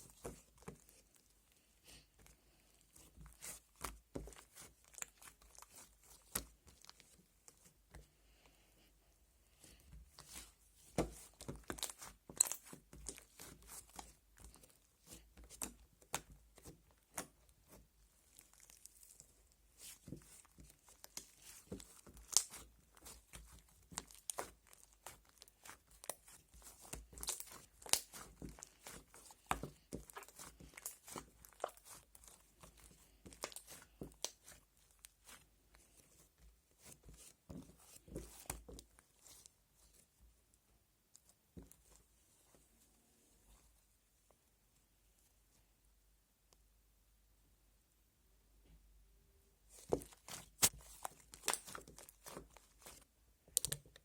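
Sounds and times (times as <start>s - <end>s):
sticky slime crackles and pops: 11.0s - 17.4s, 18.3s - 35.4s, 49.7s - 54.0s.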